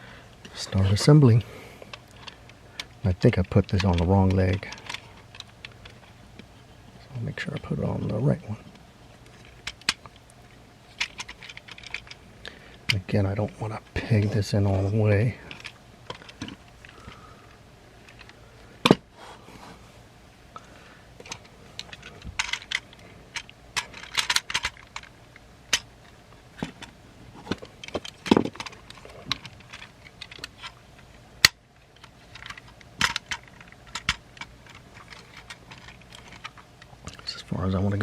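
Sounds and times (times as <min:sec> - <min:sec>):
plastic toy parts clicking: 0:01.9 - 0:06.1, 0:09.4 - 0:10.2, 0:11.0 - 0:12.2, 0:21.2 - 0:25.1, 0:27.5 - 0:30.8, 0:31.4 - 0:37.3.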